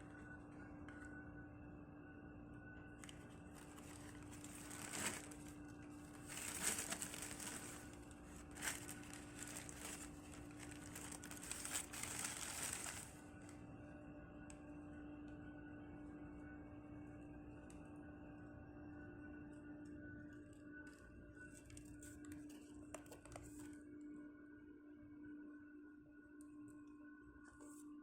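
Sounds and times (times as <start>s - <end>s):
faint steady hum: 0.0s - 28.0s
wrapping crinkling and rustling: 3.0s - 13.6s, 20.8s - 23.8s.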